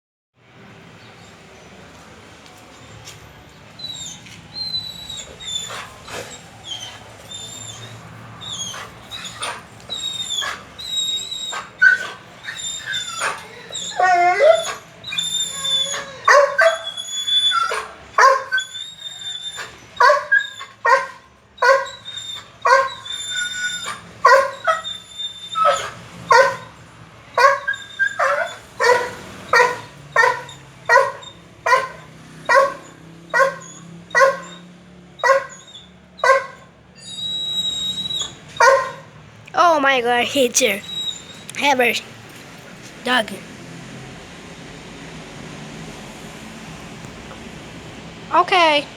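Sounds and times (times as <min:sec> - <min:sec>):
dog yelping and whining: 0:03.8 - 0:26.8, 0:27.4 - 0:39.1, 0:40.6 - 0:41.4.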